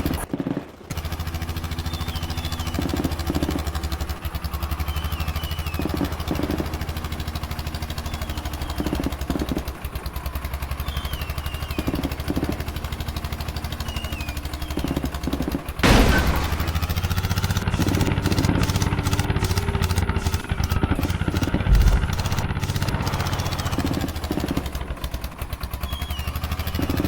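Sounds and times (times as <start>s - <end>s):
engine clatter: 0.0s - 27.0s
tractor engine running: 0.0s - 27.0s
loud bang: 15.8s - 17.2s, 21.5s - 24.0s.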